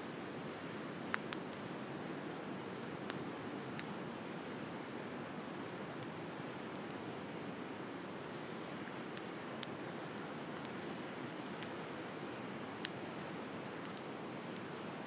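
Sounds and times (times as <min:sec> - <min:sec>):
wood fire crackling and popping: 0:09.1 - 0:11.8, 0:12.8 - 0:14.8.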